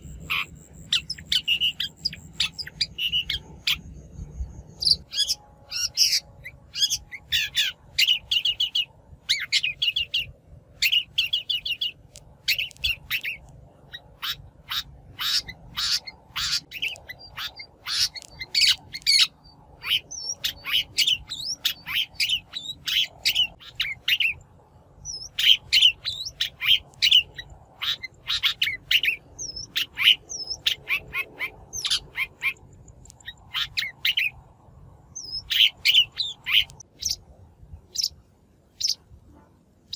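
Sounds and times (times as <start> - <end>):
shrike chattering calls: 0.0 - 3.9, 4.8 - 24.4.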